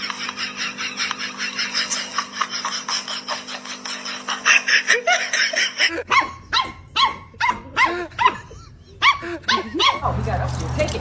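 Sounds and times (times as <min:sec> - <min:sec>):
dog barking and yipping: 0:06.0 - 0:11.0.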